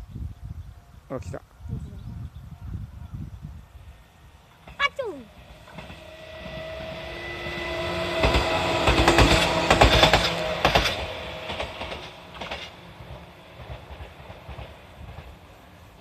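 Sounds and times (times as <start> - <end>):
train wheels clattering over joints: 4.6 - 7.0, 7.6 - 15.8.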